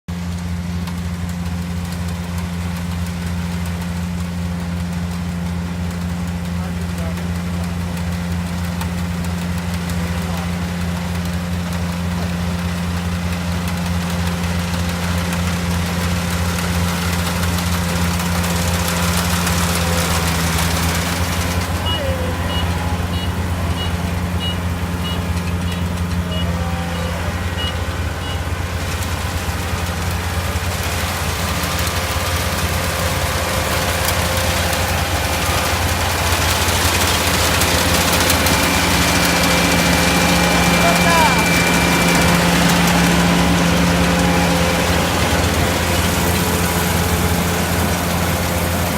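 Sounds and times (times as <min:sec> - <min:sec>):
diesel engine humming: 0:00.0 - 0:48.9
high electronic beeper: 0:21.8 - 0:28.5.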